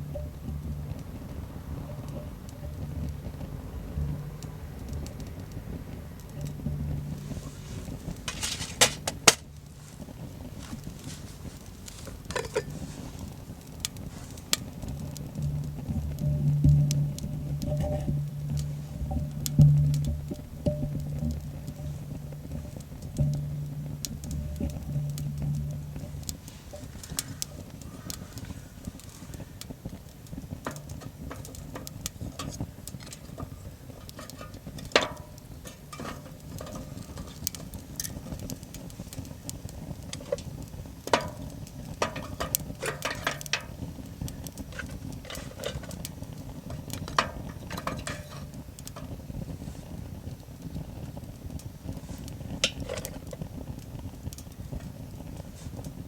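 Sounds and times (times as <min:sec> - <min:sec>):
metal cookware clinking: 0:07.1 - 0:09.6, 0:10.6 - 0:13.0, 0:16.2 - 0:29.3, 0:30.6 - 0:38.8, 0:41.1 - 0:49.2.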